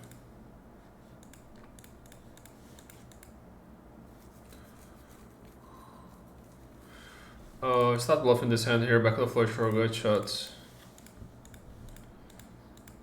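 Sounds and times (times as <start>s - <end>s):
low steady hum: 0.0s - 13.0s
faint clicks: 11.0s - 13.0s.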